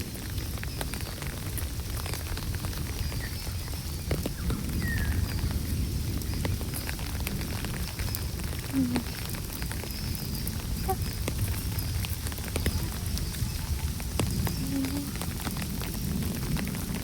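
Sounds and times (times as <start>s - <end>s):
rain drops ticking: 0.0s - 17.0s.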